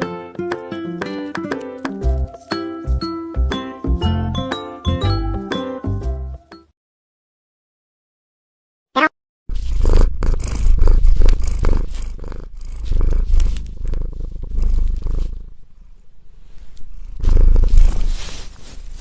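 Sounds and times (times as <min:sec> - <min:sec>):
cat purring: 0:09.5 - 0:19.0.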